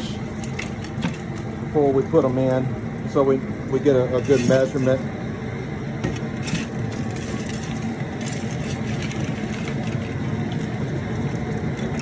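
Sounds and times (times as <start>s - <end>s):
propane burner running: 0.0s - 12.0s.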